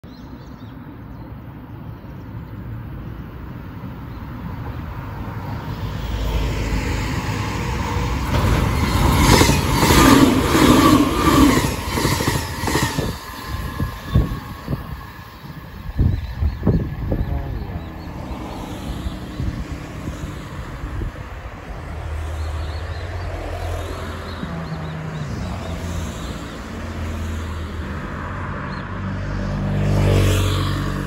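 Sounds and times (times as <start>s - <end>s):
electric train passing: 2.3s - 29.0s
wheels clacking over rail joints: 7.7s - 13.5s.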